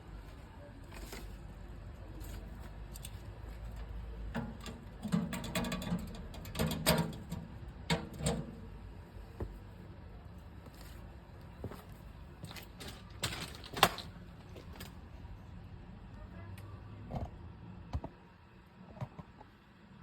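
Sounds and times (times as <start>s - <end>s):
metal stove parts clicking and rattling: 2.2s - 8.8s, 12.7s - 14.2s.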